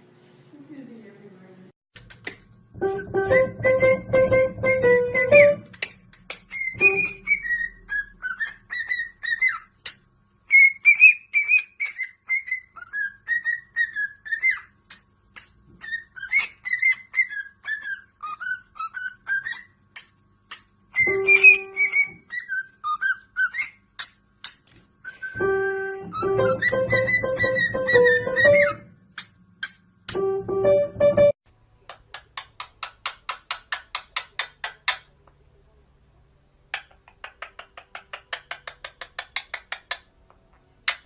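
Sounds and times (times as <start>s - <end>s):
parrot whistling: 6.5s - 9.7s, 10.5s - 14.7s, 15.8s - 19.8s, 20.9s - 23.8s, 25.0s - 28.9s.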